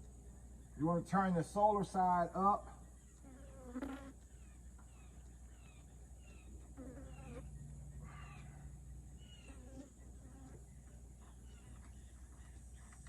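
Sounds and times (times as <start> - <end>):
birds chirping: 0.0 - 13.0
low hum: 4.2 - 13.0.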